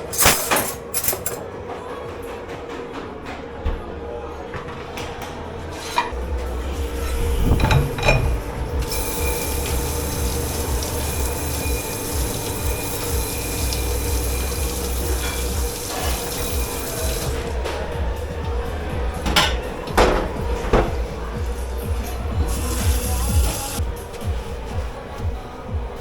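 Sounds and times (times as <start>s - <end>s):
steady hum: 6.1s - 25.9s
tap water running into sink: 7.6s - 17.5s.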